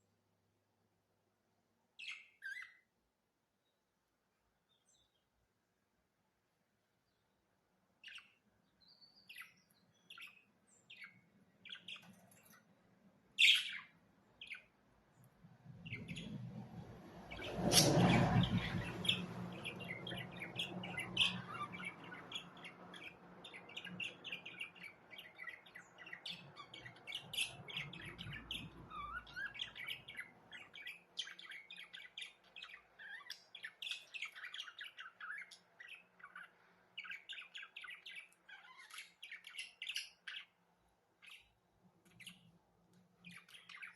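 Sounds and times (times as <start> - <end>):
budgerigars chirping and warbling: 2.0 - 2.8, 8.0 - 8.4, 9.0 - 12.6, 13.4 - 14.7, 15.8 - 16.6, 17.3 - 40.6, 41.2 - 41.5, 42.1 - 42.5, 43.2 - 43.9.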